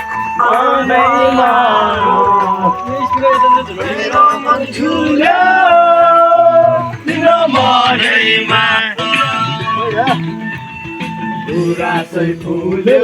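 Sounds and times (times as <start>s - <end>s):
music: 0.0s - 13.0s
man singing long bending notes: 0.2s - 10.3s.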